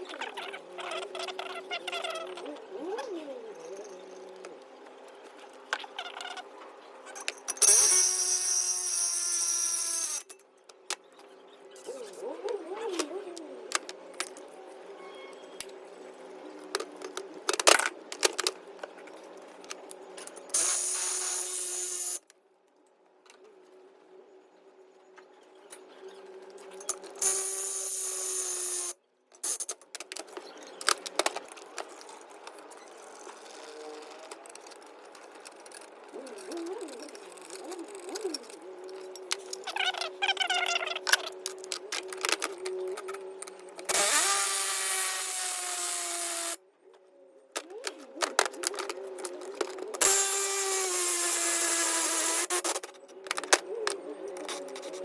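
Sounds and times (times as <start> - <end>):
power tool motor running: 20.6 - 22.2, 43.9 - 46.6, 50.0 - 52.7.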